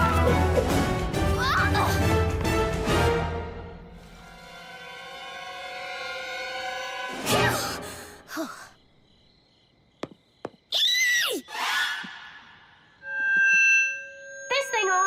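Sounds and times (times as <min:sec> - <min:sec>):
steady held tone: 0:13.0 - 0:15.0.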